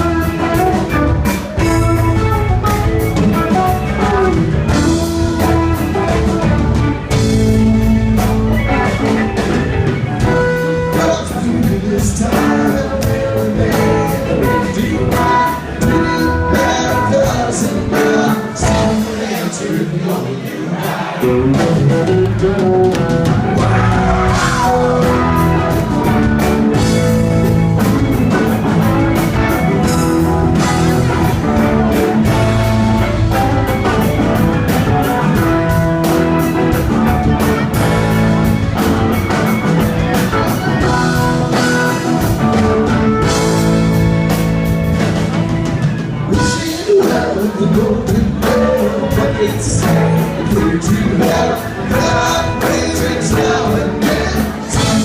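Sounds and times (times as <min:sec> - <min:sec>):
bass: 0:00.0 - 0:55.0
drum kit: 0:00.0 - 0:55.0
electric guitars: 0:00.0 - 0:55.0
keyboards: 0:00.0 - 0:55.0
person singing: 0:10.2 - 0:26.2, 0:46.3 - 0:55.0.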